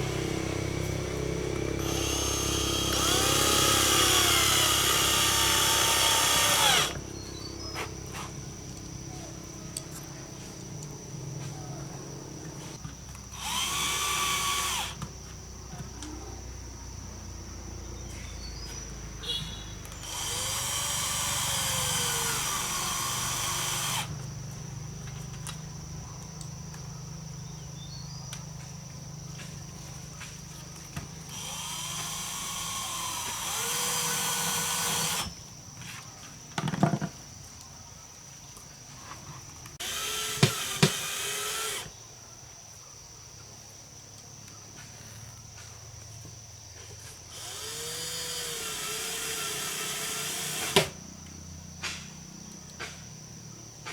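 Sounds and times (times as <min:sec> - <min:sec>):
handheld power tool motor: 0:00.0 - 0:07.2, 0:13.3 - 0:15.0, 0:19.9 - 0:24.1, 0:31.3 - 0:35.4, 0:39.8 - 0:41.9, 0:47.3 - 0:51.0.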